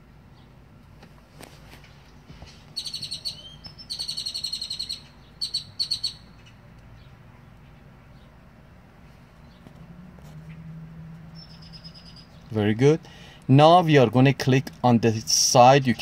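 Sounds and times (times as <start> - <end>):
bird singing fast high trills: 2.7 - 6.4, 11.4 - 12.5.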